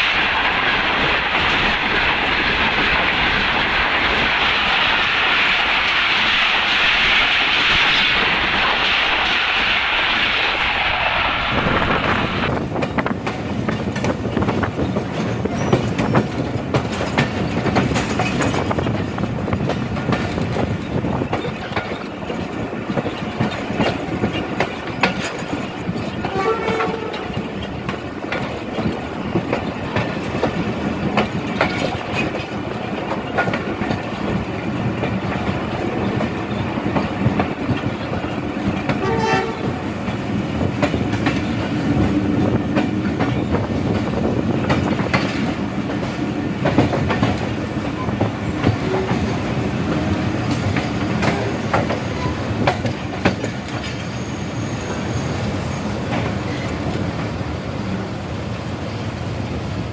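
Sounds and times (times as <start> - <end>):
train wheels rumbling and clacking: 0.0 - 59.9
train horn toots: 26.2 - 27.5, 38.9 - 39.9.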